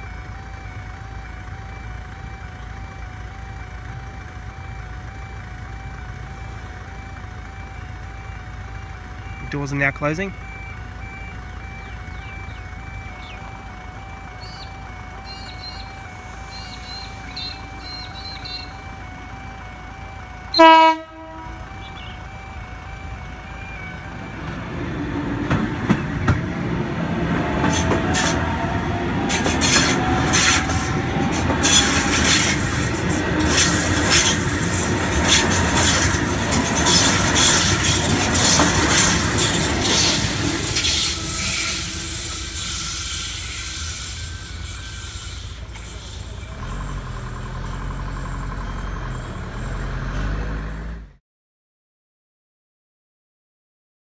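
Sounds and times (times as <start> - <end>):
train motor whine: 10.8 - 51.1
train horn blast: 20.5 - 22.1, 27.6 - 43.9
wheels clattering over rail joints: 24.4 - 50.6.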